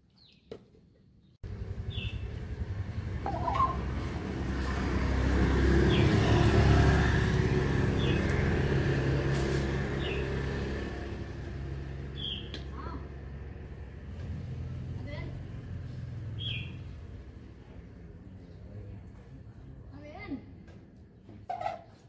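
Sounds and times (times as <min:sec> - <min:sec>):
bird chirping: 0:01.2 - 0:02.4, 0:03.2 - 0:03.9, 0:12.1 - 0:12.6, 0:16.4 - 0:16.9
vehicle engine passing by: 0:01.4 - 0:19.9.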